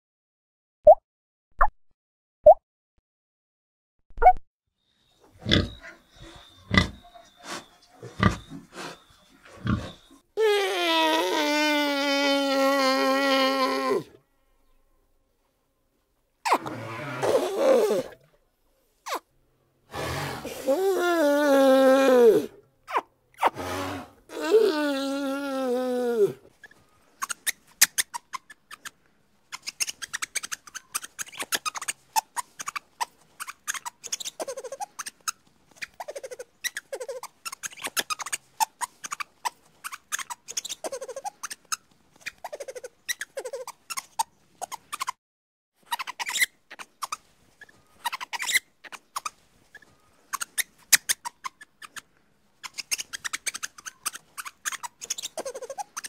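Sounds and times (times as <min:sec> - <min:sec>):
small animal squeaking: 0:05.2 - 0:12.6, 0:26.6 - 0:45.2, 0:45.8 - 0:56.0.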